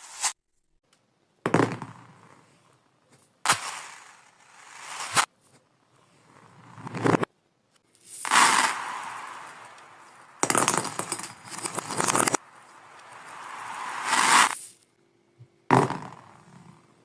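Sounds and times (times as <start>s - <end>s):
reversed marbles clattering: 3.5s - 7.3s, 7.9s - 14.9s.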